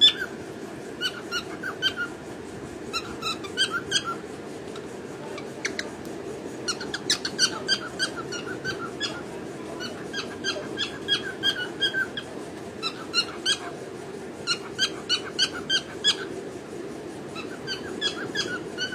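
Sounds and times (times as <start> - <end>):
cockatiel chirping: 0.0 - 0.3, 1.0 - 2.1, 2.9 - 4.2, 6.7 - 9.2, 9.8 - 12.2, 12.8 - 13.7, 14.5 - 16.3, 17.4 - 18.9
low background hum: 0.0 - 18.9.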